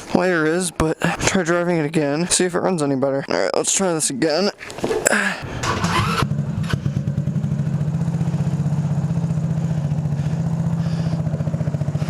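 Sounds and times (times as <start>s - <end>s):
go-kart engine idling: 5.4s - 12.0s.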